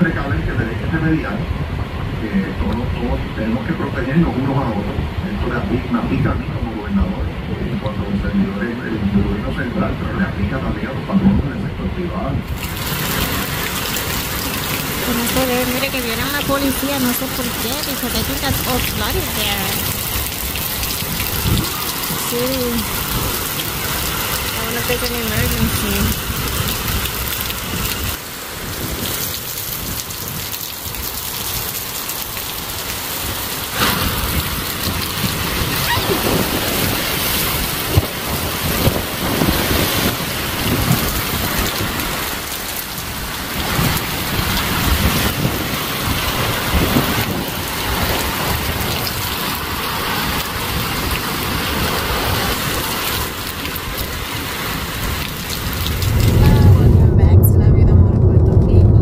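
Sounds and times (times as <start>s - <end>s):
heavy rain pouring: 0.0s - 59.0s
low rumble: 54.8s - 59.0s.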